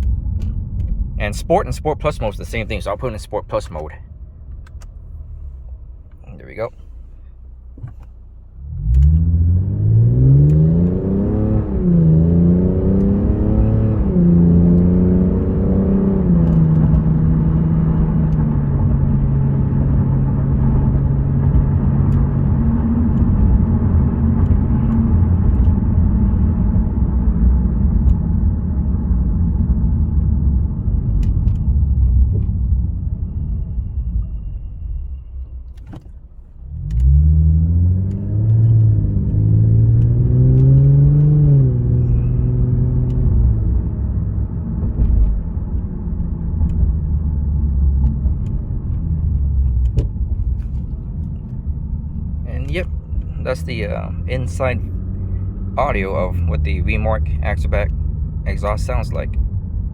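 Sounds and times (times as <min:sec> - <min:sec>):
car engine revving and upshifting: 0:07.8 - 0:29.0, 0:35.8 - 0:59.8.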